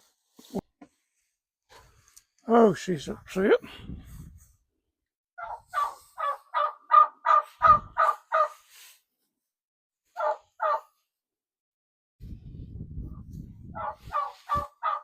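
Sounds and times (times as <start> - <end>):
turkey hen calling: 5.4 - 8.6, 10.2 - 10.9, 13.8 - 15.0.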